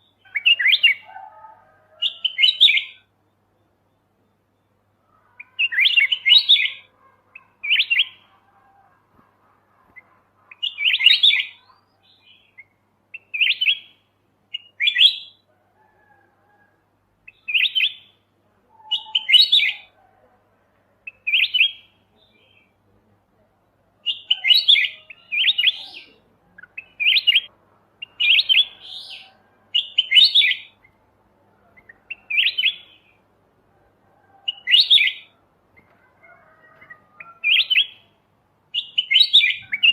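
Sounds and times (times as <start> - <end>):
bulbul singing warbling phrases: 0.0 - 1.1, 17.3 - 20.0, 24.0 - 31.0, 31.6 - 33.2, 37.0 - 38.1, 38.8 - 39.9.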